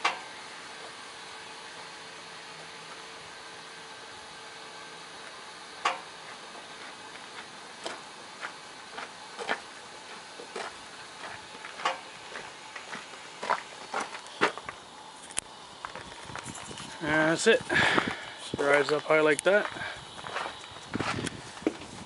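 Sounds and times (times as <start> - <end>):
sharp clicks and knocks: 5.2 - 6.1, 11.3 - 12.1.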